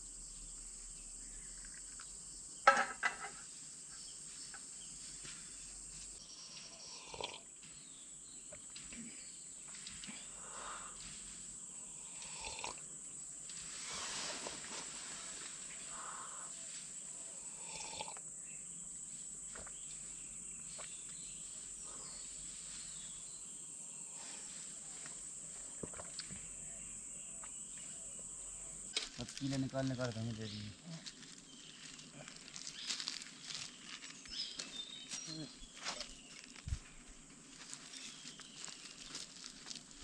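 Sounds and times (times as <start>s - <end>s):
insects chirring: 0.0s - 40.0s
rustles and light knocks: 13.4s - 15.8s.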